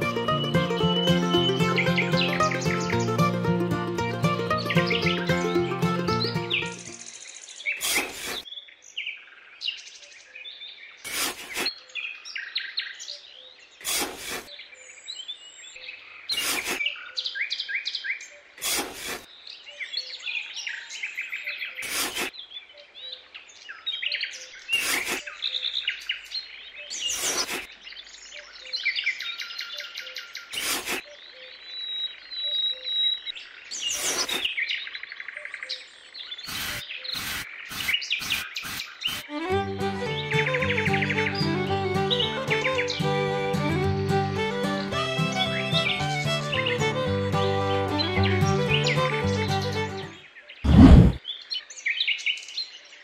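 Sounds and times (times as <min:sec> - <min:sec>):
small birds chirping: 0:00.0 - 0:53.0
metal trowel scraping sand: 0:07.8 - 0:08.4, 0:11.1 - 0:11.7, 0:13.8 - 0:14.5, 0:16.3 - 0:16.9, 0:18.6 - 0:19.3, 0:21.8 - 0:22.3, 0:24.8 - 0:25.2, 0:27.1 - 0:27.7, 0:30.5 - 0:31.1, 0:33.9 - 0:34.5, 0:36.5 - 0:39.3.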